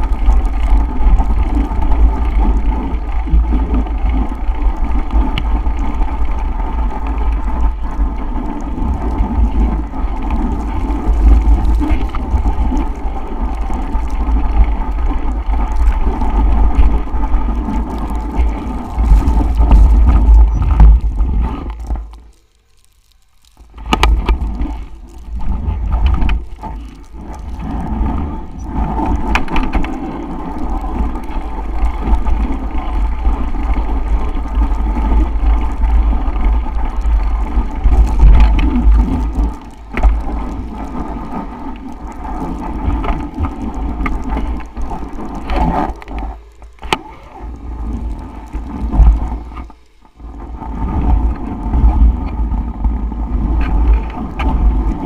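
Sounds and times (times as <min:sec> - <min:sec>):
wind buffeting microphone: 0:00.0 - 0:22.1.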